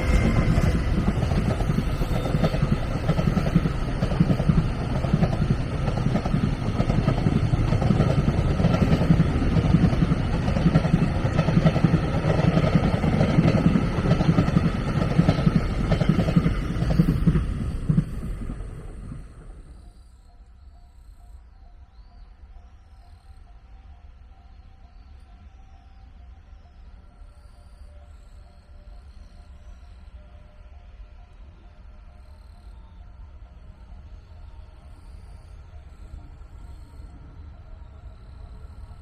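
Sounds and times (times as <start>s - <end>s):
train rumbling past: 0.0s - 20.4s, 22.3s - 39.0s.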